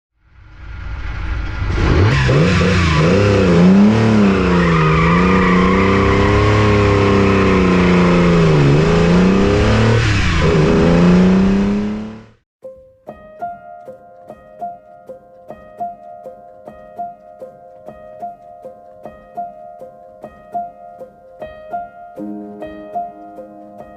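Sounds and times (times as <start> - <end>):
car engine revving: 0.5 - 12.4.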